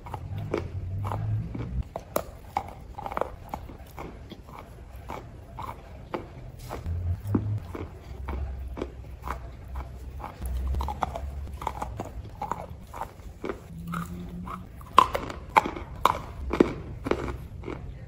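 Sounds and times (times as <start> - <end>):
person chewing with sharp crunches: 0.0 - 18.0.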